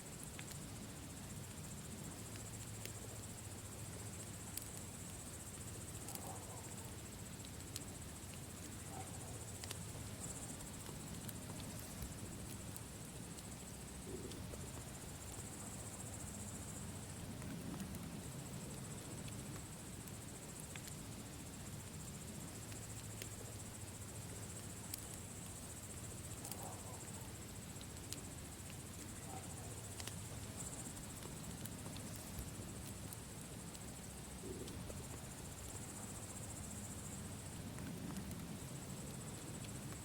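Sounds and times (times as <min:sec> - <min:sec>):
crickets chirring: 0:00.0 - 0:40.0
campfire crackling and popping: 0:00.1 - 0:40.0.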